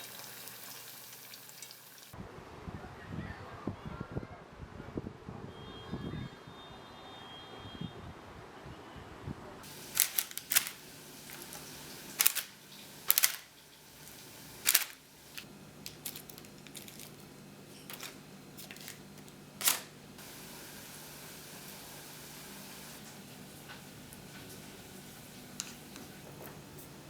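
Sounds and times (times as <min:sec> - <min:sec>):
utensils clinking against dishes: 0:09.6 - 0:20.0.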